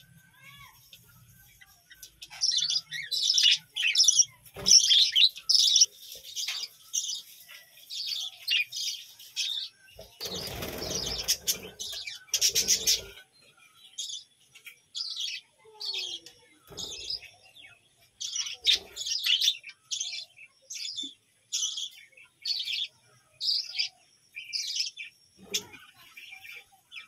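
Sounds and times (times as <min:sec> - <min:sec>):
budgerigars chirping and warbling: 0:01.9 - 0:14.3, 0:15.0 - 0:27.0
wings flapping: 0:10.2 - 0:13.1.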